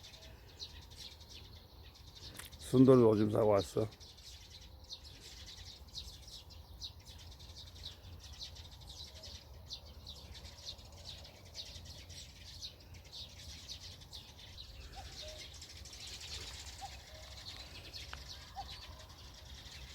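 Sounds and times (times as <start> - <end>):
songbirds chirping: 0.0 - 19.9.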